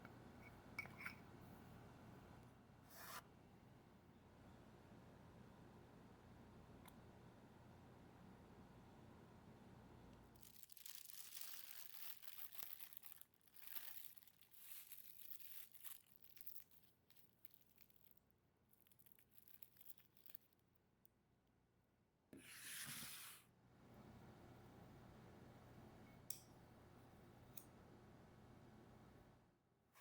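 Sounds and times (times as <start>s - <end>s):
crinkly material rustling: 10.3s - 20.8s.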